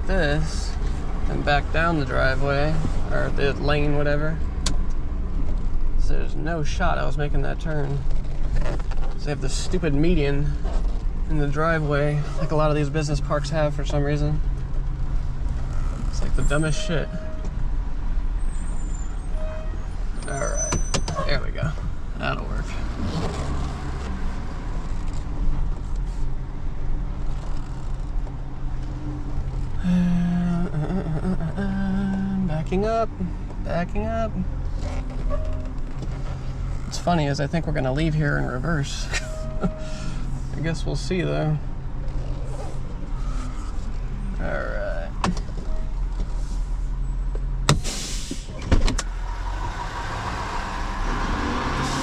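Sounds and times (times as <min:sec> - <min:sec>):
low held tone: 0:29.8 - 0:32.8, 0:39.0 - 0:40.2.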